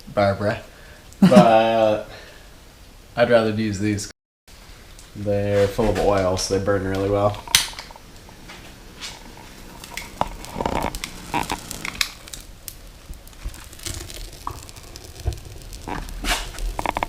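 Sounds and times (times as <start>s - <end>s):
bark crackling in wood stove: 4.8s - 17.0s.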